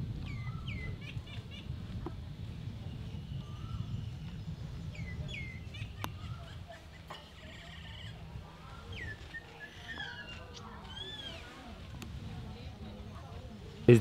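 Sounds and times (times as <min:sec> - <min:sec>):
whistled bird calls: 0:00.2 - 0:01.4, 0:03.0 - 0:06.6, 0:08.8 - 0:11.6.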